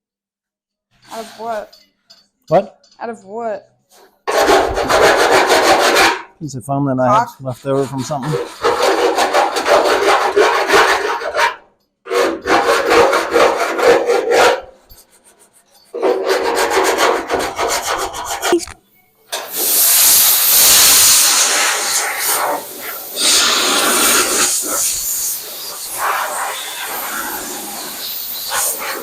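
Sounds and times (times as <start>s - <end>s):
sandpaper rubbing on car panel: 7.7s - 11.5s, 12.1s - 18.6s
loud steady hiss: 19.4s - 29.0s.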